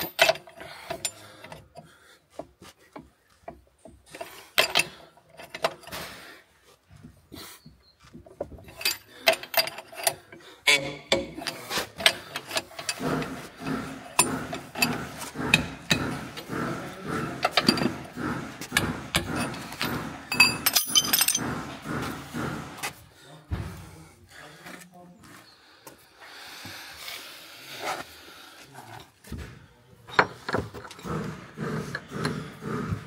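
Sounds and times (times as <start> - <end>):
hand tools clinking on steel: 0.0 - 6.1, 8.2 - 22.5.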